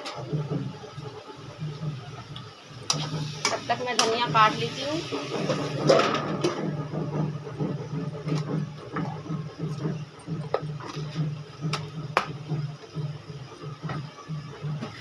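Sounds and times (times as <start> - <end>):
low pulsing hum: 0.2 - 15.0.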